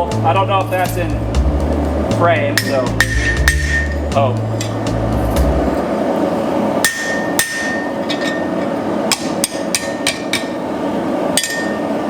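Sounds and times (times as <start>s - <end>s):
anvil ringing: 2.6s - 4.0s, 6.8s - 8.5s, 11.4s - 11.9s
hammer striking punch on steel: 2.6s - 4.0s, 6.8s - 8.0s.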